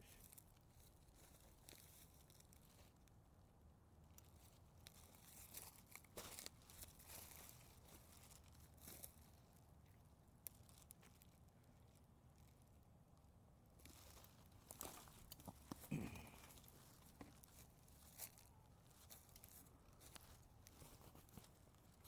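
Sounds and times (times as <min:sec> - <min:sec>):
rustling through dry leaves: 0:04.3 - 0:09.4, 0:13.8 - 0:22.0.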